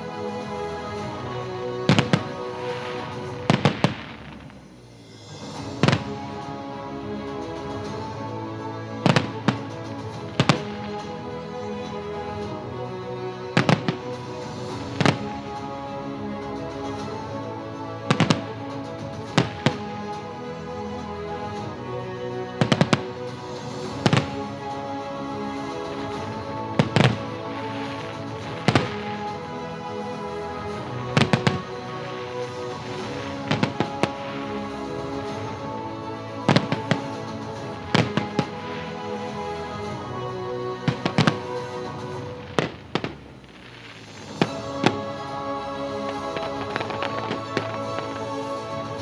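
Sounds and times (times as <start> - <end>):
music: 0.0 - 49.0
fireworks bangs: 1.9 - 6.6, 8.8 - 12.5, 13.4 - 15.6, 18.1 - 20.2, 22.6 - 40.2, 40.8 - 49.0.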